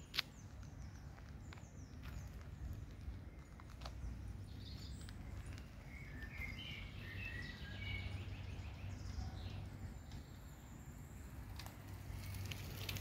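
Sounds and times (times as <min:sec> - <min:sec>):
bird chirping: 0:03.4 - 0:11.3.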